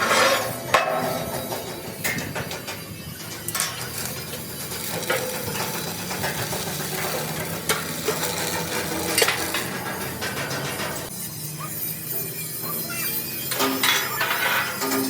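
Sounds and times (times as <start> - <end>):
electric arc welding sizzle: 3.4 - 10.2.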